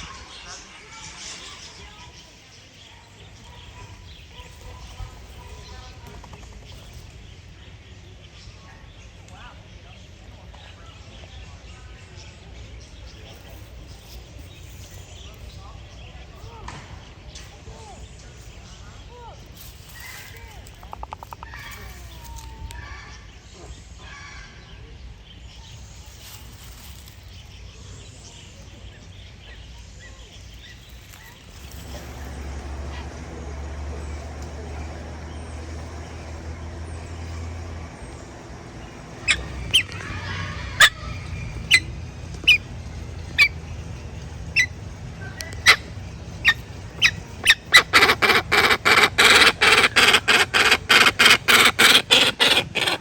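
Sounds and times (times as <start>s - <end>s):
birds chirping: 0.0s - 53.0s
steady low rumble: 30.2s - 53.0s
low hum: 31.5s - 49.6s
faint bird chirps: 38.8s - 53.0s.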